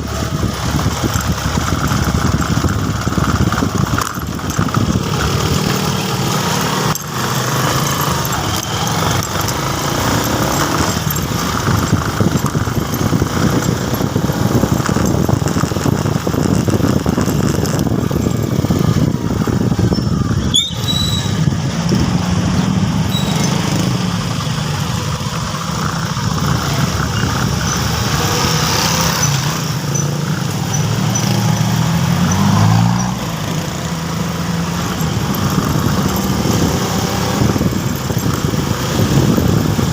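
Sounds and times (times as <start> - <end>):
motorcycle engine running: 0.0 - 39.9
road and wind noise: 0.0 - 39.9
short high squeal: 19.8 - 21.6, 23.0 - 23.7.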